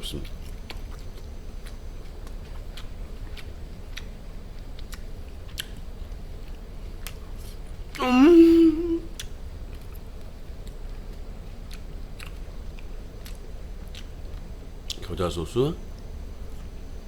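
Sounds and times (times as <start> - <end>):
closed-mouth hum: 0.0 - 17.0
mouth clicks chewing food: 0.2 - 7.5, 9.1 - 15.1.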